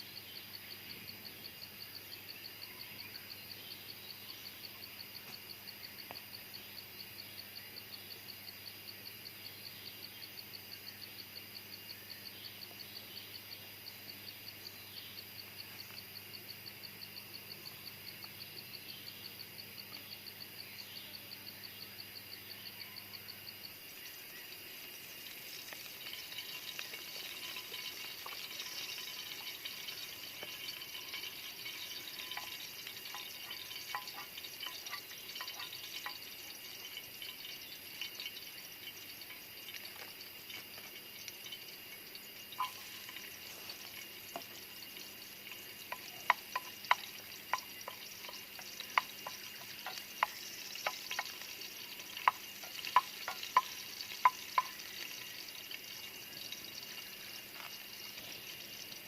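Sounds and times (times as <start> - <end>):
insect chirping: 0.0 - 59.0
sizzling and crackling: 23.9 - 59.0.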